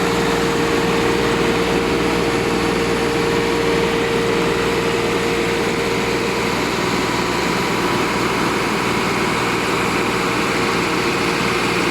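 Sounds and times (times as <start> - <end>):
diesel tractor idling: 0.0 - 11.9.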